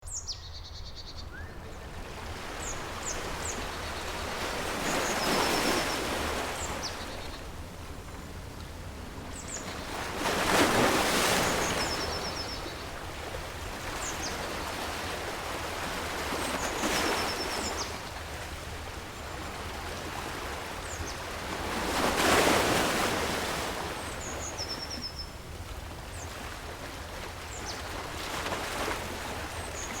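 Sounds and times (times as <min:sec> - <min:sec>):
ocean waves breaking: 0:01.5 - 0:24.2.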